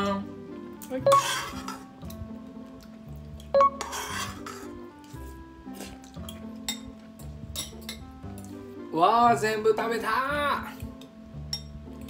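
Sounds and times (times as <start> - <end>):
background music: 0.0 - 12.0
spoons clinking and scraping dishes: 1.1 - 2.2, 3.4 - 8.6, 10.9 - 12.0.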